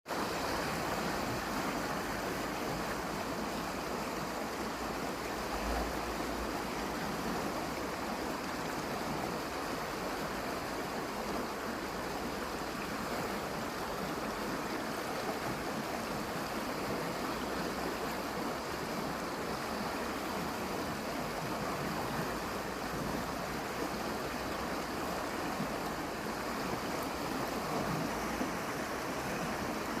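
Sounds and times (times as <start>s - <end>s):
water rushing: 0.1s - 30.0s.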